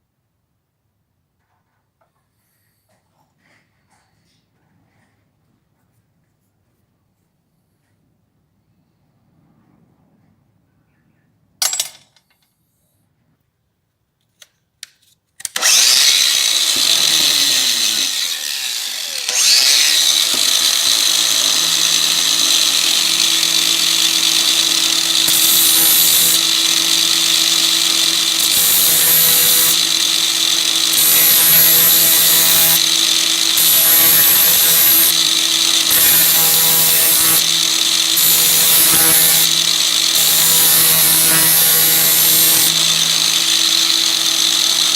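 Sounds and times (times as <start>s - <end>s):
electric power tool running: 15.5s - 44.9s.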